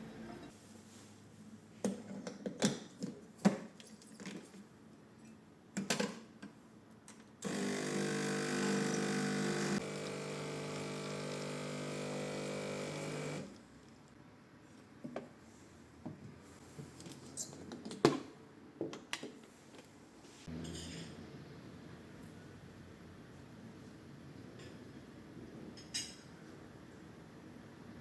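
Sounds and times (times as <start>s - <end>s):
small electric motor running: 7.4s - 13.5s.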